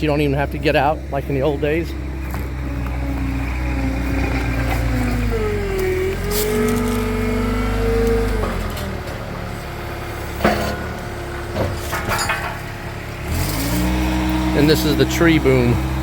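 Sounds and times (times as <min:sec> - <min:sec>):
loader engine under hydraulic load: 0:00.2 - 0:16.0
sharp metal clanks: 0:10.3 - 0:12.8.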